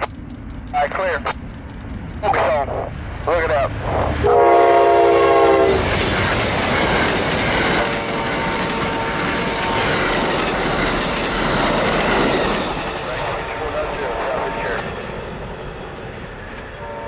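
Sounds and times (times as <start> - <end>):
train passing: 0.0 - 17.0
train horn blasts: 3.6 - 5.9, 7.8 - 10.2, 13.9 - 14.9, 16.7 - 17.0.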